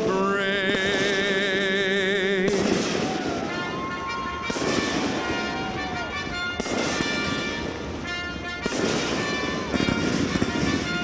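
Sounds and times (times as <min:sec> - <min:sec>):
man singing with vibrato: 0:00.0 - 0:03.0
fireworks launching and bursting: 0:00.0 - 0:11.0.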